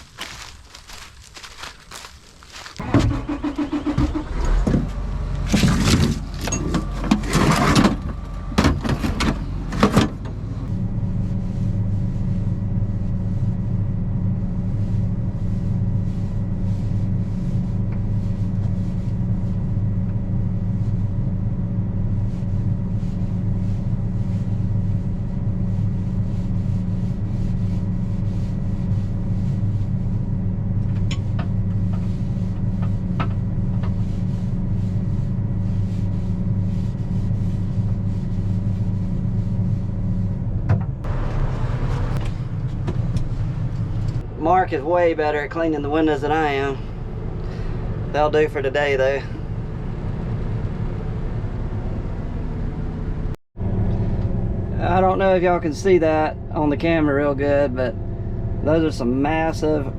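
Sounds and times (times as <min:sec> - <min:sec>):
vehicle engine droning: 0:00.0 - 0:59.9
clunks and rattles: 0:02.7 - 0:10.7, 0:40.6 - 0:41.1, 0:42.0 - 0:44.2.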